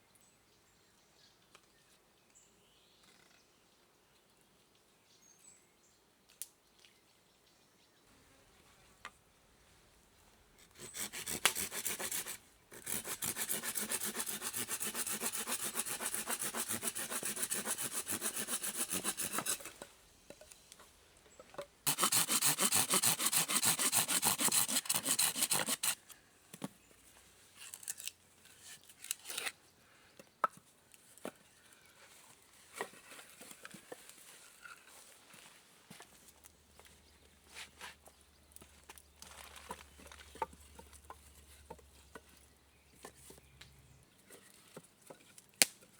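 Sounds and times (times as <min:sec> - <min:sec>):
hand tool working wood: 0:10.6 - 0:19.8, 0:21.9 - 0:26.2.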